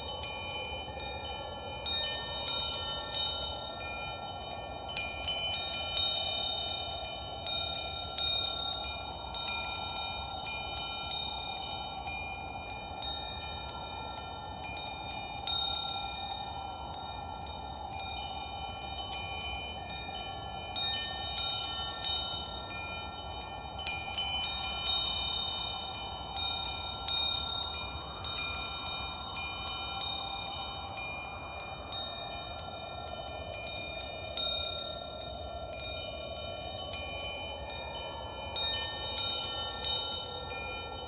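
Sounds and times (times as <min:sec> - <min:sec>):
wind chimes ringing: 0:00.0 - 0:41.0.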